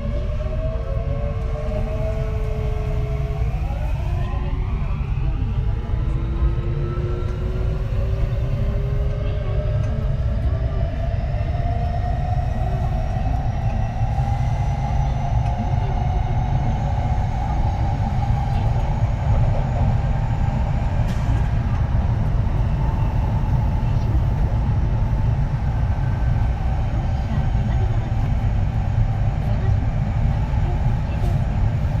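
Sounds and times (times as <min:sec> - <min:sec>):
train inverter and motor whine: 0:00.0 - 0:32.0.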